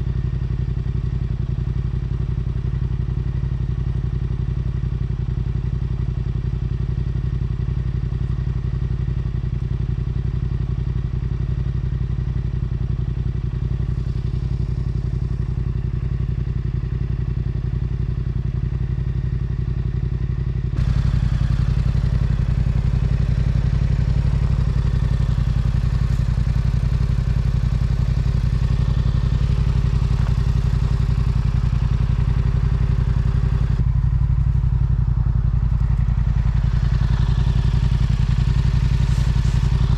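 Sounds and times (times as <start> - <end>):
motorcycle engine cruising: 20.5 - 39.9.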